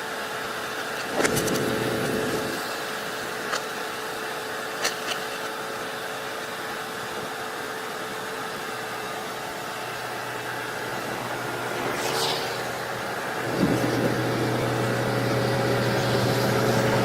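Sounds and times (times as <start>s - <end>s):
backhoe loader engine running: 0.0s - 17.0s
brief whoosh: 11.6s - 14.1s.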